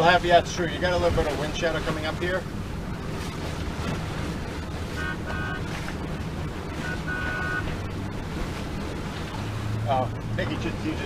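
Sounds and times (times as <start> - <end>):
water noise: 0.0 - 11.0
wind: 0.0 - 11.0
high-pitched boat horn toots: 4.9 - 5.9, 6.7 - 7.8.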